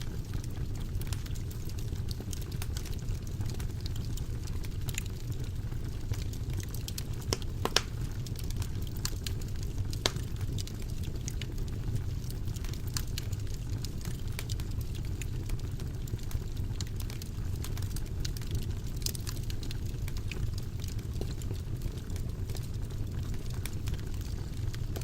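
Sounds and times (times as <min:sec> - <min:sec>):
fire crackling and popping: 0:00.0 - 0:25.0
low rumble of flames: 0:00.0 - 0:25.0.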